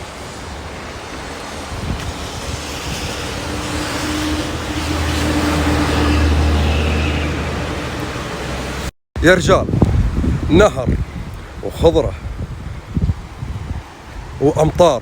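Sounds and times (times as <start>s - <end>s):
rain: 0.0s - 8.9s, 9.8s - 14.6s
river water flowing: 0.0s - 8.9s, 9.8s - 15.0s
motor vehicle engine hum: 0.1s - 8.9s.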